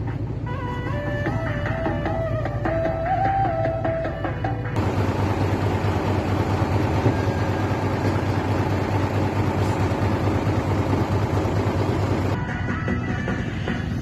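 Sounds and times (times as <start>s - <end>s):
truck engine rumbling: 0.0s - 12.4s.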